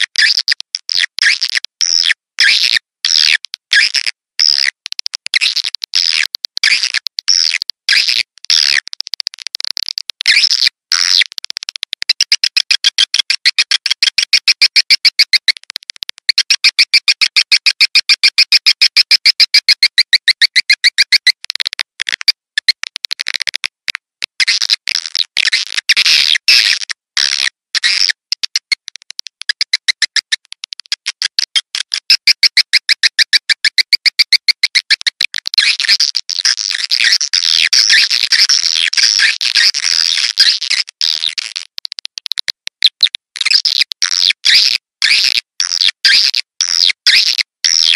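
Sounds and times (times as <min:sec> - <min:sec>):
recorded bird twittering loop: 0:16.4 - 0:21.3.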